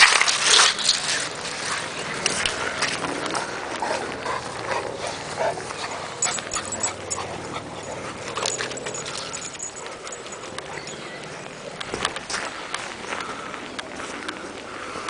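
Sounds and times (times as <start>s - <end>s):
pug dog making sounds: 4.8s - 11.4s.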